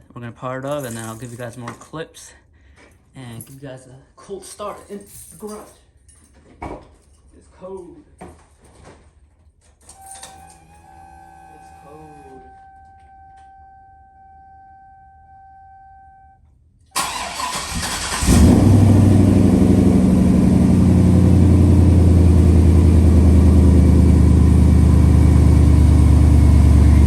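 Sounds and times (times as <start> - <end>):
steady high tone: 10.0 - 16.4
truck engine idling: 17.0 - 27.0.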